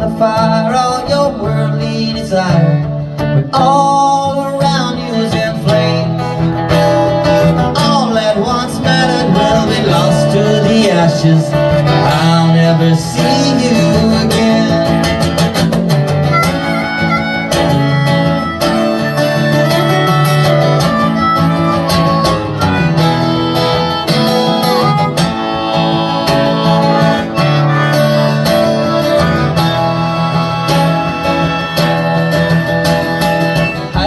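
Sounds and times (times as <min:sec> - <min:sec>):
strummed acoustic guitar: 0:00.0 - 0:34.0
sustained bending melody line: 0:07.3 - 0:34.0.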